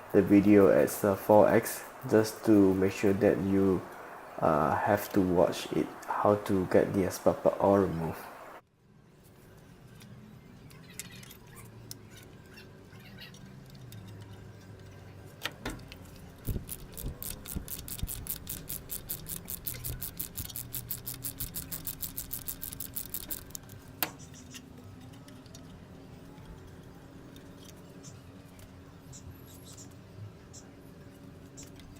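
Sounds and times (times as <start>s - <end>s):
socket ratchet clicking: 16.5s - 23.7s.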